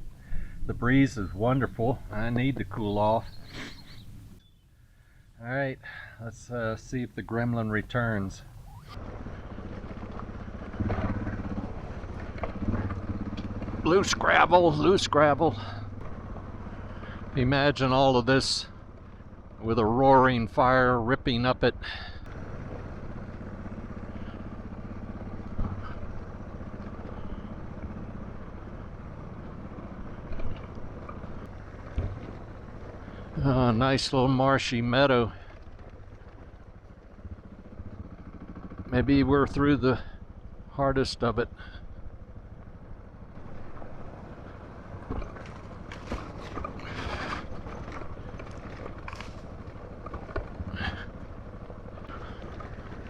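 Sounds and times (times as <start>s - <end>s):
motorcycle engine running slowly: 0.0s - 53.0s.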